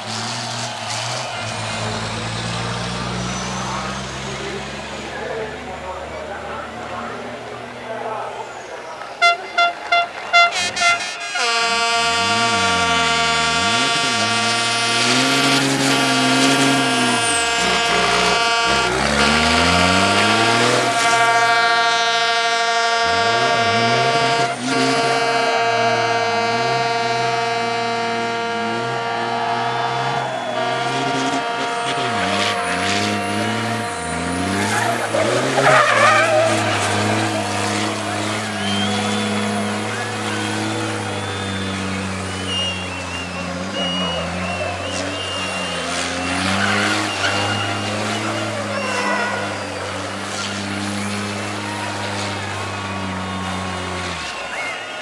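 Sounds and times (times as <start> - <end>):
truck air horn: 0.0 - 7.6, 9.2 - 55.0
truck engines revving: 0.0 - 55.0.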